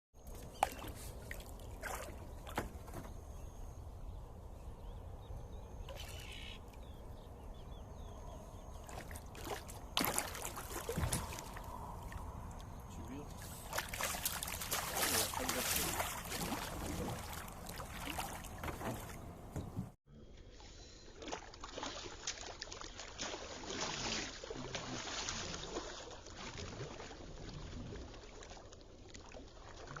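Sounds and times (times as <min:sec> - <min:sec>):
water sloshing against boat: 0:00.2 - 0:04.7, 0:05.6 - 0:20.0
knocks and clunks: 0:18.6 - 0:20.0.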